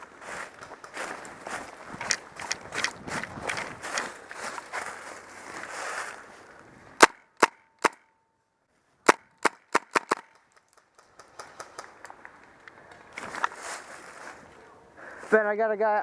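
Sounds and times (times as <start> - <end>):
footsteps through brush: 0.0 - 7.0, 11.4 - 15.5
airsoft gun shots: 9.1 - 10.3.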